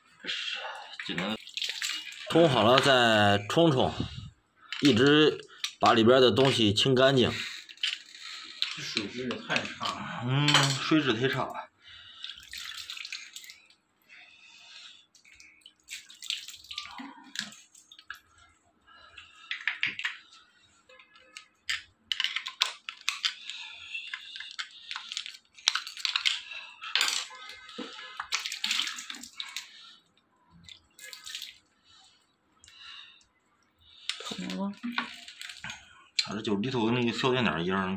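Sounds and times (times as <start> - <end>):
water splashing: 0.7 - 3.0, 10.6 - 13.6, 14.6 - 18.3, 23.0 - 29.9, 30.6 - 31.6.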